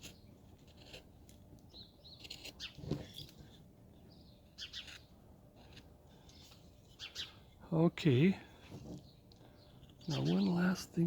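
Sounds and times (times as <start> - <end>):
knife carving hard wood: 0.0 - 3.7, 4.4 - 7.6.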